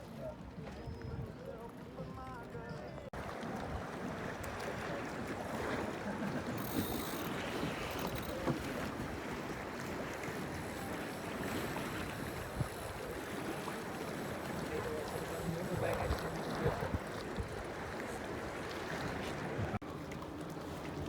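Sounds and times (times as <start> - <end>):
water washing past hull: 3.0 - 21.0
wind on microphone: 10.8 - 13.4, 15.6 - 19.8.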